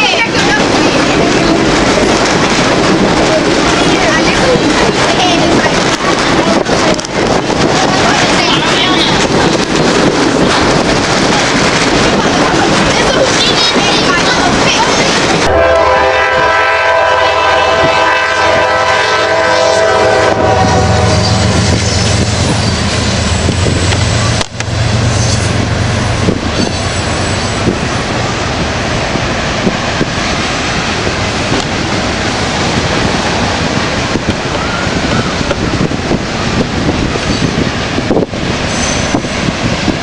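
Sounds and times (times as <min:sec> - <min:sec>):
wheels clattering over rail joints: 0:00.0 - 0:15.4
moving train rumble: 0:00.0 - 0:40.0
locomotive air horn: 0:15.4 - 0:21.6.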